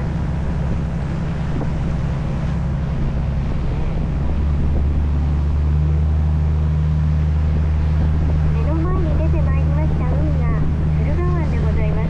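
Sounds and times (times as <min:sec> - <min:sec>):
boat engine droning: 0:00.0 - 0:12.0
water noise: 0:00.0 - 0:12.0
wind: 0:00.0 - 0:12.0.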